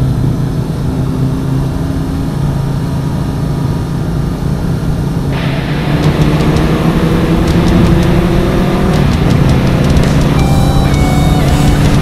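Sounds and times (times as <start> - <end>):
wind rush: 3.7 - 12.0
motorcycle engine running: 4.9 - 12.0
quick ticks: 6.0 - 12.0.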